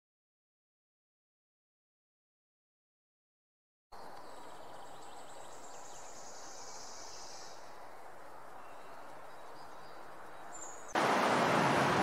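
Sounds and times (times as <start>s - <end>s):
steady low hiss: 3.9s - 12.0s.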